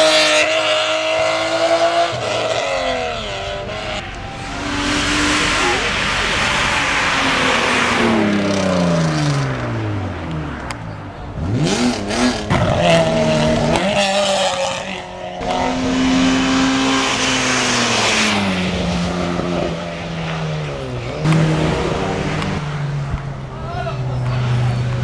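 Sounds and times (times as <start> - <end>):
race car engine revving: 0.0 - 10.7, 11.3 - 25.0.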